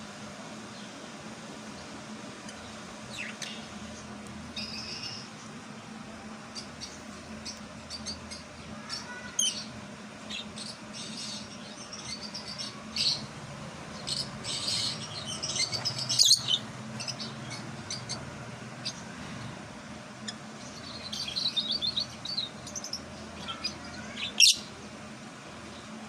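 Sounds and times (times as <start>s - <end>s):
low steady hum: 0.0s - 26.0s
lovebirds chirping: 6.5s - 19.1s, 20.2s - 24.8s.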